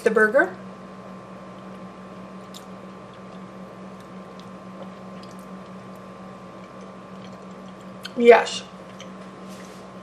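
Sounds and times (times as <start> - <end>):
low electrical hum: 0.0 - 10.0
person chewing: 2.4 - 8.2, 8.8 - 9.3.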